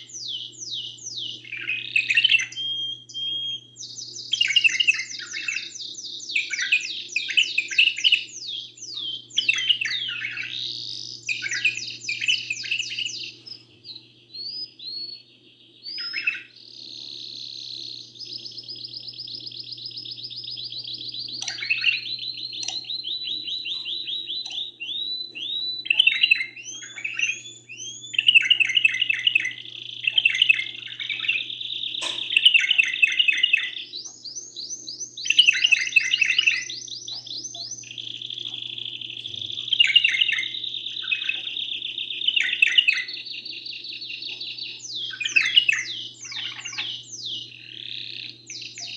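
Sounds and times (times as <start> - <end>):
canary singing trills: 0.0 - 48.9
faint low hum: 0.0 - 48.9.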